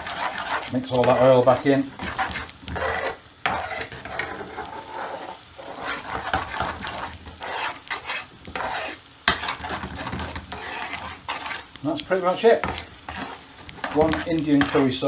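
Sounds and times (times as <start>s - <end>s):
utensil scraping sauce in a pan: 0.0s - 15.0s
utensil clacking against pan: 6.2s - 7.6s, 8.5s - 15.0s.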